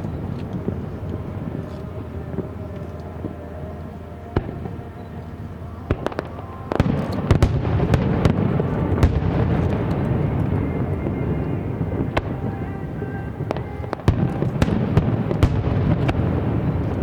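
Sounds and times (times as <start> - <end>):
fireworks bursting: 4.3 - 17.0.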